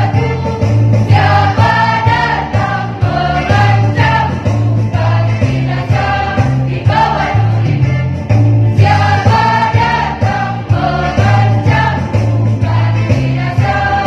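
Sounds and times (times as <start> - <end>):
choir singing: 0.0 - 8.0, 8.8 - 14.0
accompaniment with bass line: 0.0 - 14.0.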